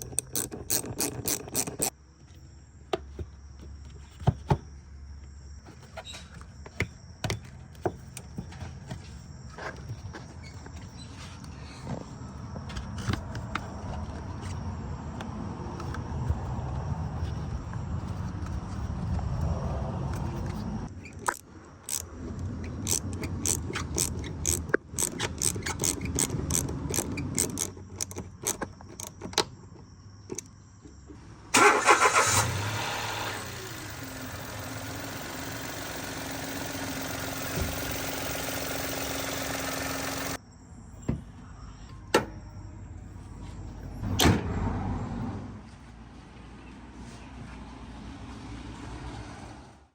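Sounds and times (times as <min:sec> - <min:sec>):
car engine starting and idling: 0:31.5 - 0:40.4.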